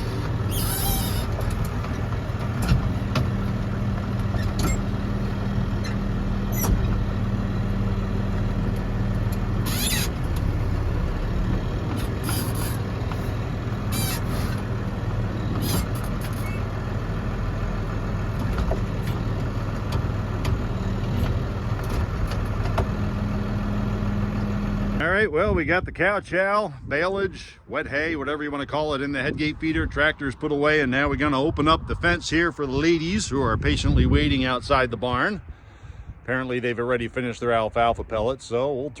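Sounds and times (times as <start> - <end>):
high squeaks: 0.0 - 1.8, 9.6 - 10.2, 12.0 - 12.9, 13.9 - 14.6, 15.4 - 16.7
clanks: 0.0 - 5.0
tractor engine running: 0.0 - 25.1.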